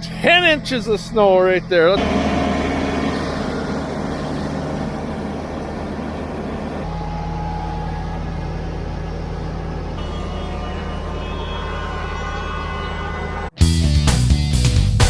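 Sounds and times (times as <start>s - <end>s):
tractor diesel engine running: 2.0s - 11.3s.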